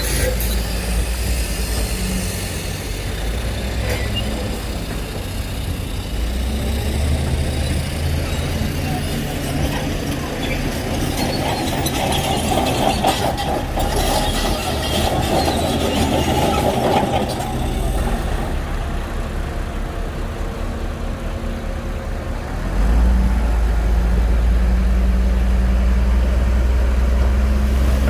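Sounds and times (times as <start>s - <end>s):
rattling track clatter: 0.0s - 6.4s, 7.2s - 18.9s
diesel engine drone: 0.0s - 28.0s.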